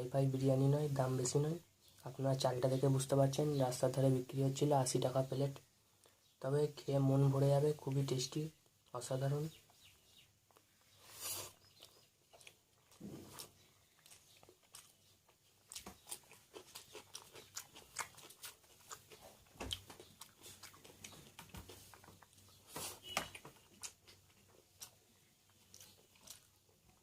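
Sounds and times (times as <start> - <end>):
person chewing food: 9.7 - 27.0.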